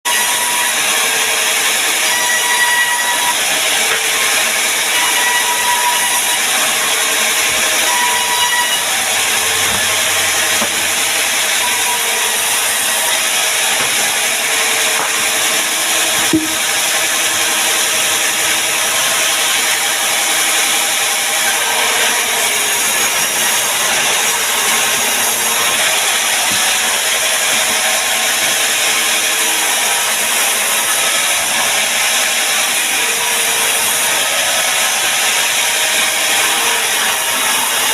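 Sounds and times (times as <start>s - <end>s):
power tool cutting wood: 0.1s - 37.9s
sharp knock: 16.2s - 16.7s.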